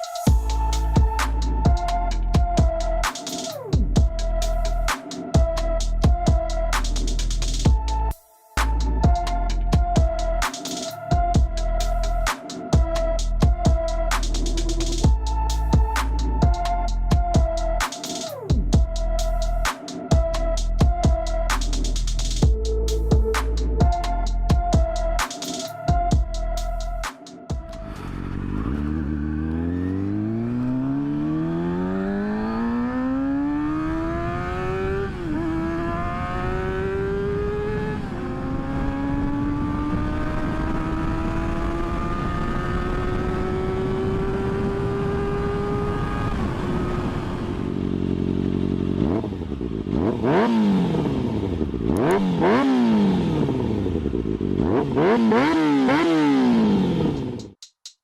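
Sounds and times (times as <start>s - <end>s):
motorcycle engine revving: 27.5s - 57.6s.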